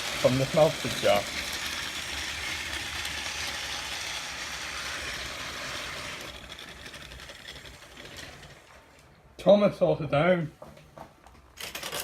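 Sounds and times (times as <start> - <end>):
toy train motor running: 0.0 - 9.0, 11.6 - 12.0.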